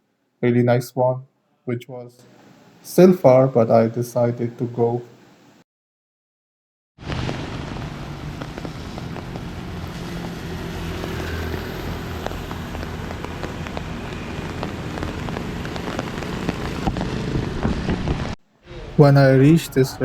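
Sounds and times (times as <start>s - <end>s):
rain falling: 7.0s - 18.4s
street traffic rumble: 7.0s - 20.0s.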